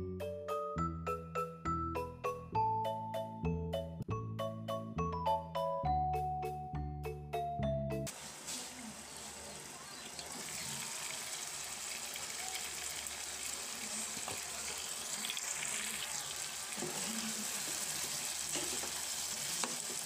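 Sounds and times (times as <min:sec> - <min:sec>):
meat and potatoes sizzling in oil: 0:08.1 - 0:20.0.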